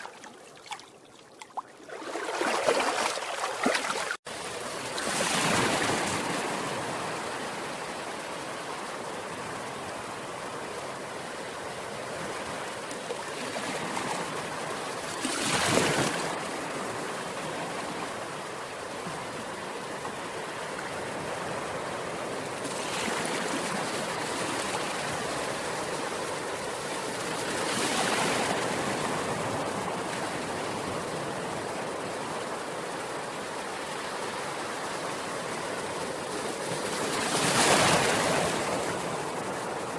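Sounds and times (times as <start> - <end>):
ocean waves breaking: 0.0 - 7.8.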